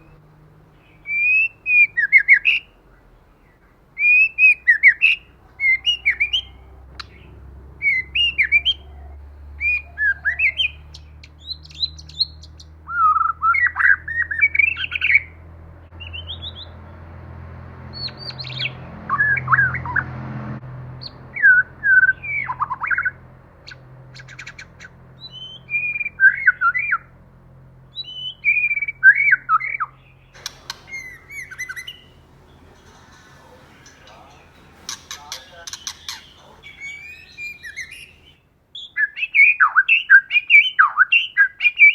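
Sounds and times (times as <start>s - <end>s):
faint low hum: 30.4s - 38.4s
bird singing whistled phrases: 30.4s - 41.9s.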